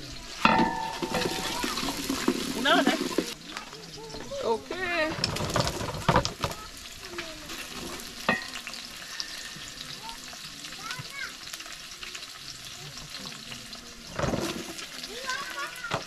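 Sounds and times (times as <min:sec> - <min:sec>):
food sizzling in a pot: 0:00.0 - 0:16.0
lid clattering: 0:00.4 - 0:03.4.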